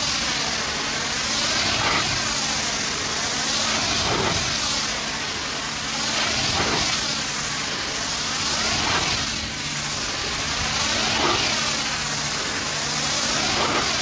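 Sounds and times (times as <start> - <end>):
pressure washer jet hissing: 0.0 - 14.0
pump motor hum: 0.0 - 14.0.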